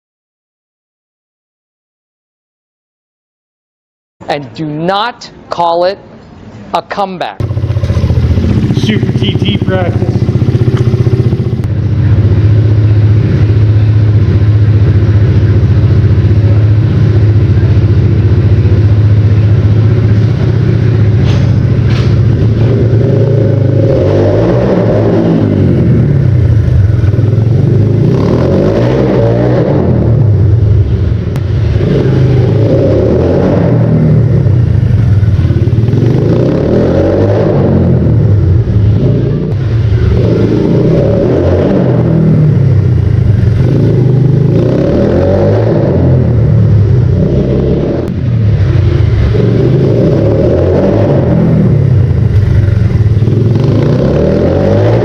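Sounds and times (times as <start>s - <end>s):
motorcycle engine revving: 7.4s - 55.0s.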